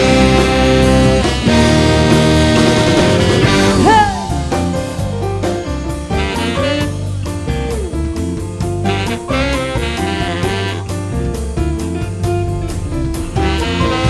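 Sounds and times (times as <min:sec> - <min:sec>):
live blues-rock band playing: 0:00.0 - 0:14.0
guitar note sliding down: 0:12.2 - 0:14.0.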